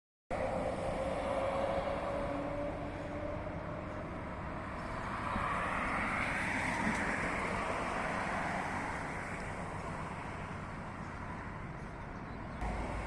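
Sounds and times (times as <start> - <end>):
truck driving past: 12.6 - 13.0.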